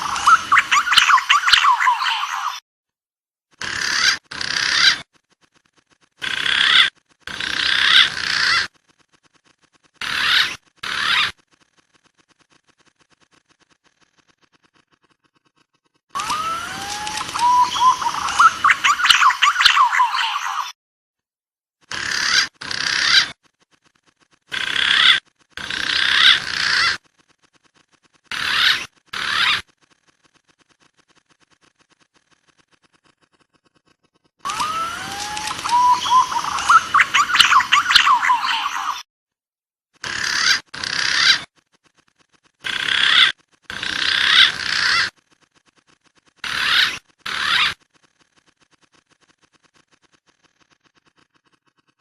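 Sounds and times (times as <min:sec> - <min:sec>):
recorded warbling bird calls: 0:00.0 - 0:02.6, 0:03.6 - 0:05.1, 0:06.2 - 0:08.7, 0:09.4 - 0:11.4, 0:14.4 - 0:20.8, 0:24.5 - 0:27.0, 0:28.3 - 0:29.7, 0:32.5 - 0:39.0, 0:40.0 - 0:41.5, 0:42.6 - 0:45.2, 0:46.4 - 0:47.8.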